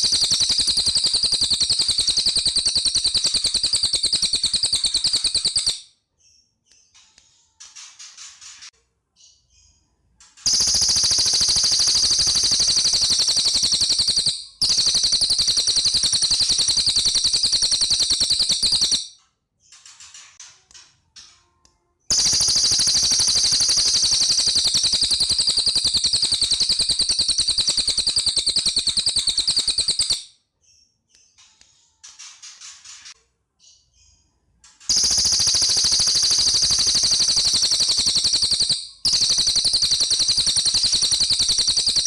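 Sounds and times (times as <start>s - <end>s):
songbird rattling trills: 0.0s - 5.8s, 10.4s - 19.1s, 22.1s - 30.2s, 34.9s - 42.0s.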